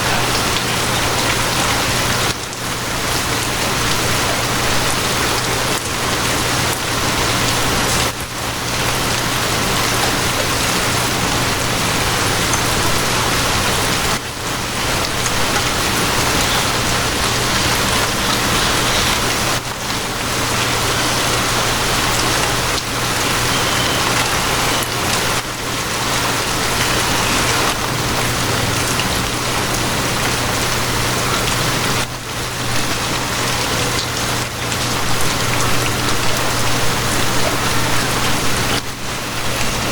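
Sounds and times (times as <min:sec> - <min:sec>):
heavy rain on surfaces: 0:00.0 - 0:39.9.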